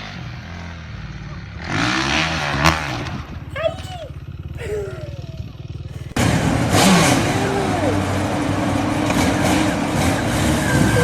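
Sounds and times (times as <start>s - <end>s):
road noise: 0.0s - 11.0s
motorcycle engine running: 0.1s - 11.0s
voices: 3.4s - 11.0s.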